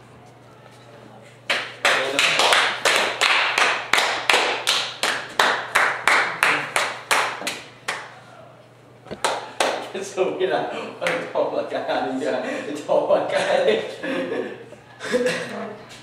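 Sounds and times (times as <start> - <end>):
hands clapping in rhythm: 1.5 - 8.2, 9.1 - 10.0, 11.0 - 11.3.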